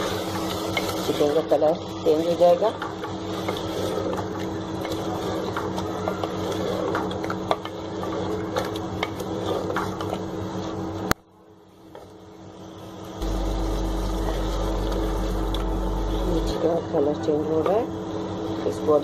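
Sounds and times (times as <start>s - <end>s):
chicken sizzling in oil: 0.0s - 10.9s
very low hum: 13.0s - 18.8s.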